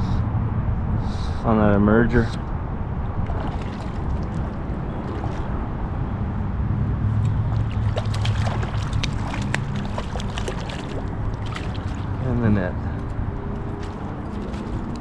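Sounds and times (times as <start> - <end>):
water sloshing and splashing: 3.0 - 6.2, 7.0 - 15.0.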